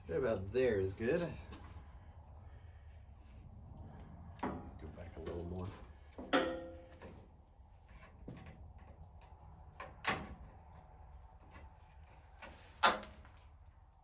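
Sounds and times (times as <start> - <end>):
light clicks of metal parts: 0.1 - 1.8.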